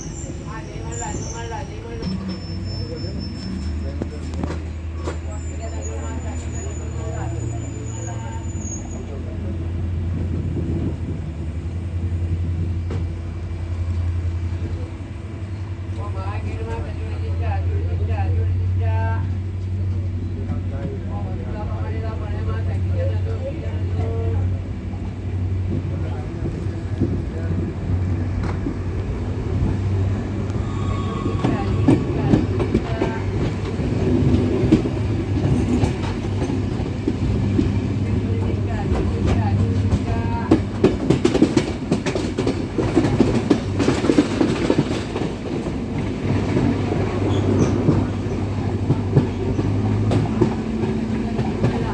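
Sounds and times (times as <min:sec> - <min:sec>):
train rumbling: 0:00.0 - 0:51.9
wheels clacking over track: 0:25.6 - 0:51.9.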